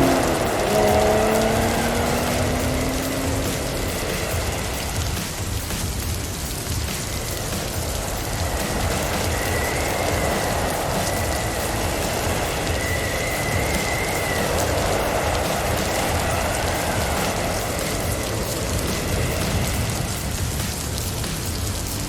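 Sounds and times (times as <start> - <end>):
car rumbling on road: 0.0 - 5.1
wind and snow rushing against car: 0.0 - 22.0
faint high whistle: 12.2 - 16.8.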